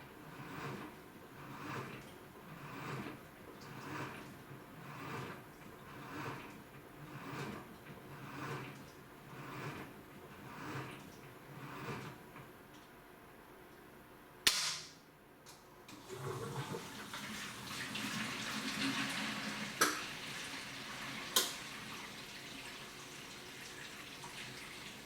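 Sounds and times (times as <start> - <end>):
water running: 15.9 - 25.0.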